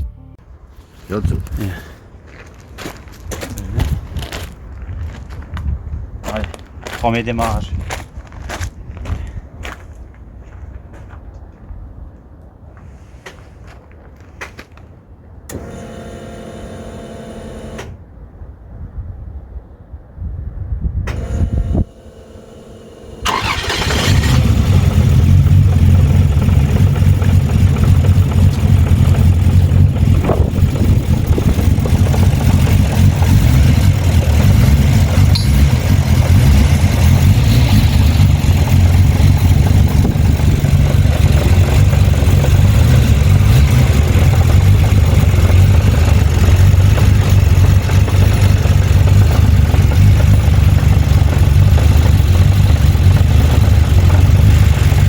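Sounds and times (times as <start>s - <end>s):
car engine starting and running: 0.0s - 0.4s, 15.5s - 18.0s, 21.1s - 55.0s.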